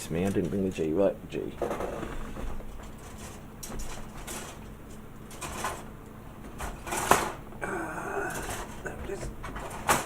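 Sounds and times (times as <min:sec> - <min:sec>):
plastic parts scraping and clattering: 0:01.6 - 0:07.4, 0:08.4 - 0:10.0.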